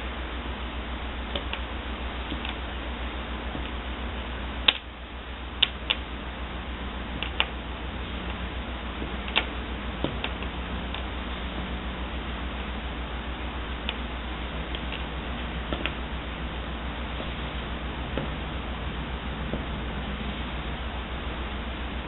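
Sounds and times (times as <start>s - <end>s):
steady low hum: 0.0s - 22.0s
blind cord clicking and tapping: 1.3s - 2.7s, 7.2s - 7.6s, 9.0s - 11.1s, 14.7s - 16.0s.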